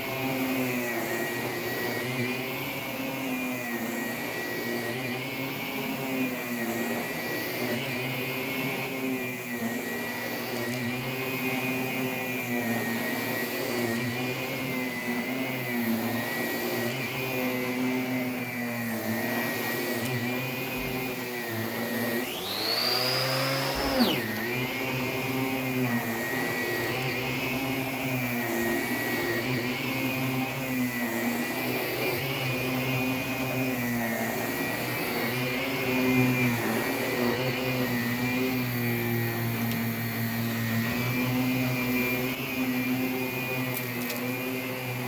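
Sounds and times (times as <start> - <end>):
high whine: 22.2 - 24.4
vacuum droning: 22.2 - 24.4.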